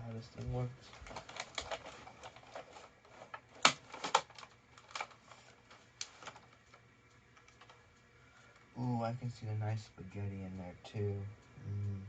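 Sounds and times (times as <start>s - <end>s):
plastic parts clicking and knocking: 0.4s - 6.7s.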